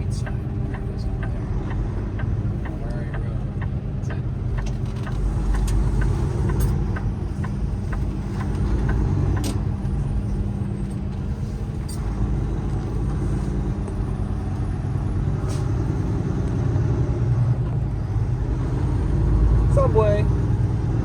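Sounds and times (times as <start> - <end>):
light regular ticking: 0.0 - 11.2
truck diesel engine droning: 0.0 - 21.0.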